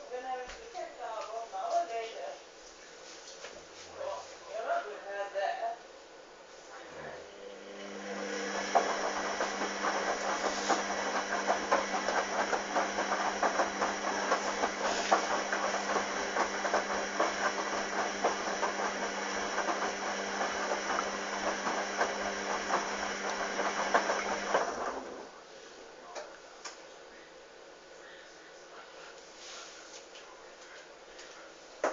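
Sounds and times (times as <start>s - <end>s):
washing machine running: 7.0s - 25.4s.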